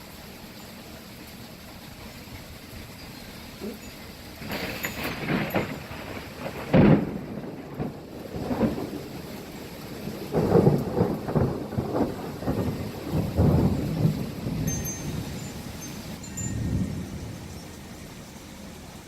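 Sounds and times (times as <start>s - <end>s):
steady rain: 0.0s - 19.0s
loud thunder clap: 4.4s - 9.2s, 10.1s - 14.7s
thunder rumbling: 4.4s - 19.0s.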